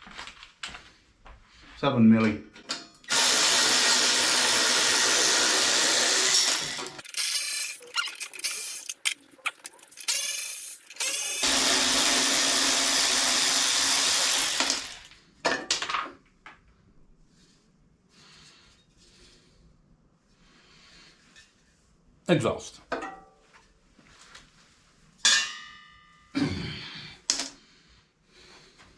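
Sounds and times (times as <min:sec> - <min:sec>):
cordless power driver running: 0:03.1 - 0:15.1.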